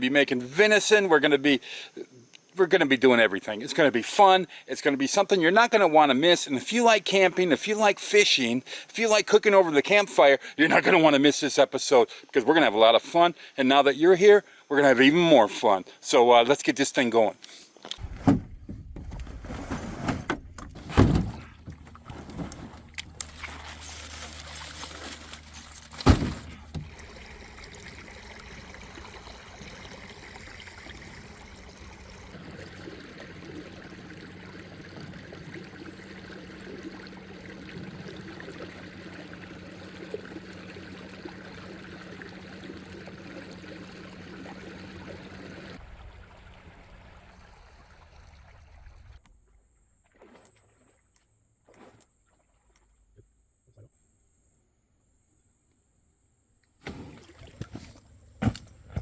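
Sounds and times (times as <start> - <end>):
water sloshing and trickling: 17.8 - 49.2, 50.0 - 53.1, 56.8 - 59.0.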